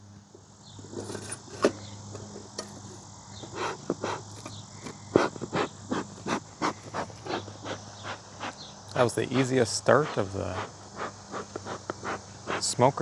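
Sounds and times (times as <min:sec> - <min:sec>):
bellows puffing air: 0:03.5 - 0:12.8.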